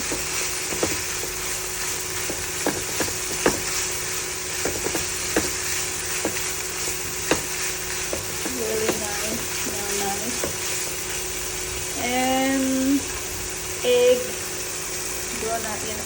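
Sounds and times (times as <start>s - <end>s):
spatula knocking against pan: 0.0s - 1.4s, 2.2s - 3.8s, 4.5s - 6.5s, 7.2s - 9.2s
meat sizzling in a frying pan: 0.0s - 16.0s.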